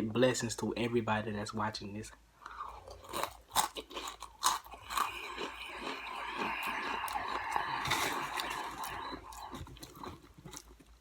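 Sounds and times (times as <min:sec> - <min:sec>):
crunchy snack being chewed: 0:02.7 - 0:11.0.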